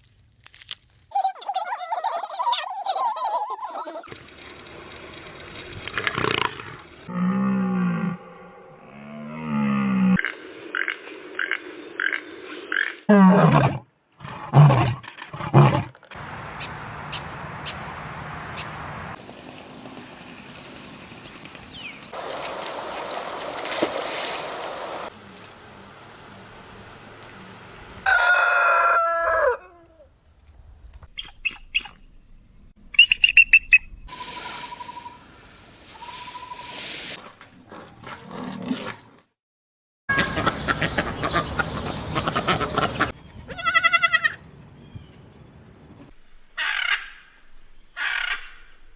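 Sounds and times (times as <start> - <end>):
lion roaring: 13.1 - 16.1
rooster crowing: 28.0 - 30.0.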